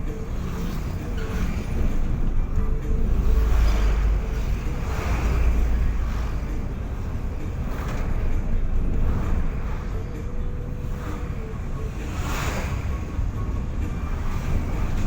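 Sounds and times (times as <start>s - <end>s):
moving vehicle rumble: 0.0s - 15.0s.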